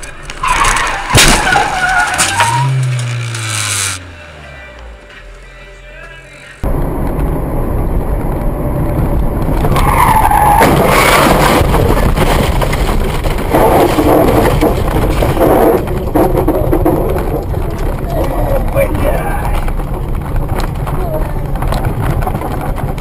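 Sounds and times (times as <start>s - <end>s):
road and wind noise: 0.0s - 23.0s
tyres squealing in a skid: 0.1s - 4.0s, 9.7s - 11.7s.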